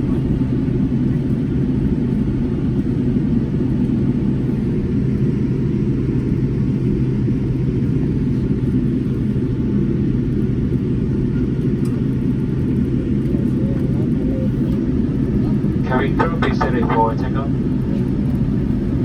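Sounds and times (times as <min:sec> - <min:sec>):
jet engines idling low rumble: 0:00.0 - 0:19.0.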